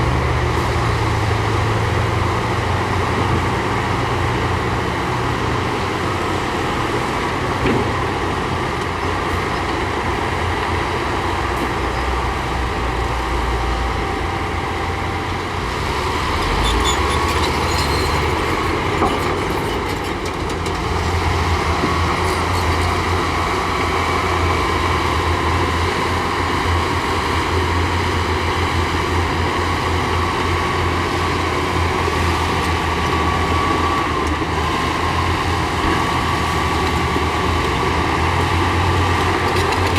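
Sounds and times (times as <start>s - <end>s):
heavy diesel machinery droning: 0.0s - 39.9s
metal clanks and squeaks: 16.3s - 20.8s, 22.2s - 23.3s.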